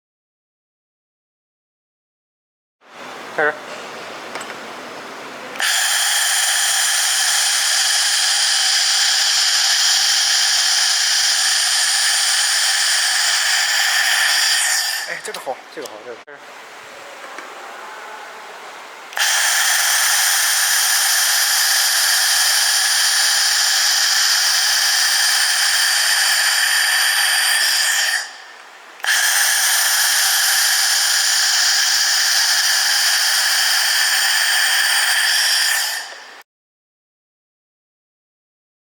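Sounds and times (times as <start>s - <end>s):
welding machine buzzing hiss: 5.6s - 16.0s, 19.2s - 36.4s.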